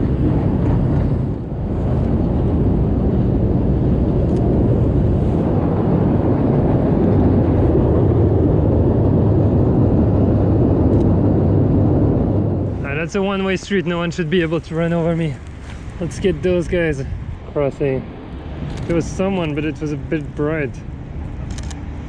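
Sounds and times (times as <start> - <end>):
city street rumble: 0.0 - 22.0.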